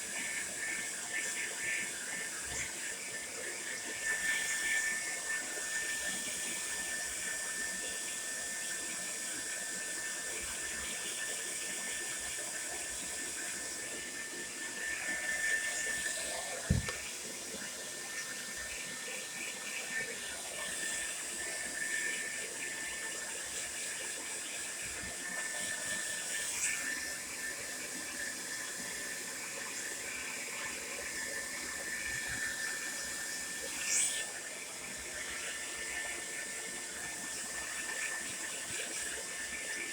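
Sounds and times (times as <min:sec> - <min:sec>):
hair dryer running: 0:13.0 - 0:22.8
knock: 0:16.7 - 0:17.0.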